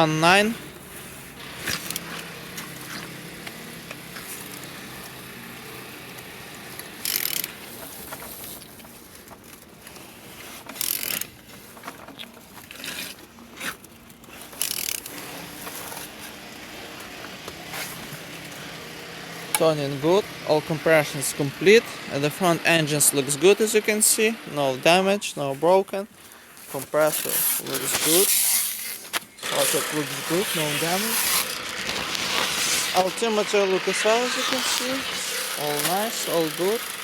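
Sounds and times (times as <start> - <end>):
engine turning over by hand: 0.0 - 37.0
ratchet wrench clicking: 6.2 - 8.1, 10.7 - 11.3, 14.5 - 16.0, 27.1 - 37.0
short hissing bursts: 27.2 - 37.0.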